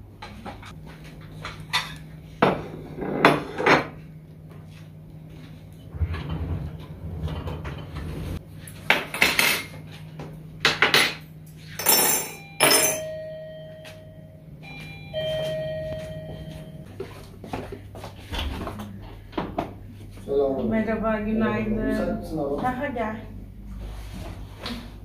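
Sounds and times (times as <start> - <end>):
dishes and cutlery clattering: 11.8 - 13.1
steady tone: 21.3 - 23.7.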